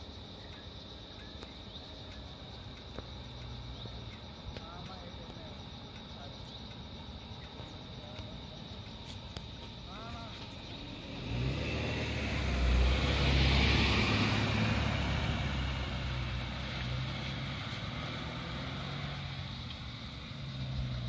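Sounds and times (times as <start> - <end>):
low steady engine hum: 0.0 - 21.0
car driving past: 10.4 - 21.0.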